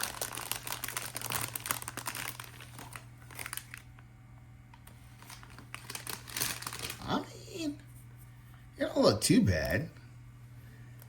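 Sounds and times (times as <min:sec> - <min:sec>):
plastic packaging crinkling: 0:00.0 - 0:04.1, 0:04.8 - 0:07.2
low steady hum: 0:00.0 - 0:11.0.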